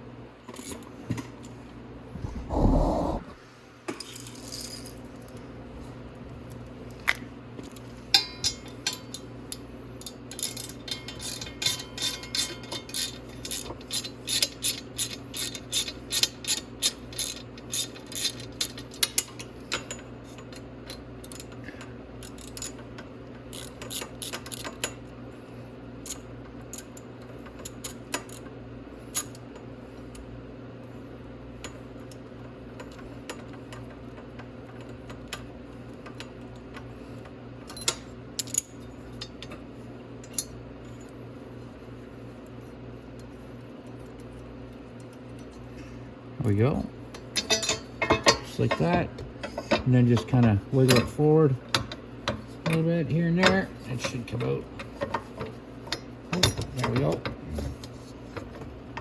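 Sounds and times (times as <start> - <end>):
steady low hum: 0.0 - 4.0
tool clinks: 47.4 - 48.9.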